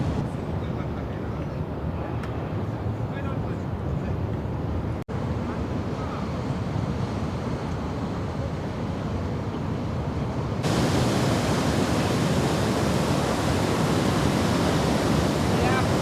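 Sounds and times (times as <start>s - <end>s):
ocean surf rushing: 0.0s - 0.2s, 10.6s - 16.0s
wind: 0.0s - 16.0s.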